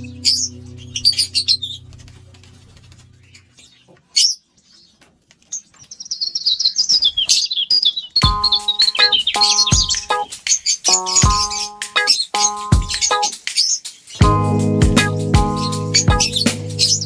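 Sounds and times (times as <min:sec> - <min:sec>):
low held tone: 0:00.0 - 0:02.4
lovebirds chirping: 0:00.0 - 0:14.2.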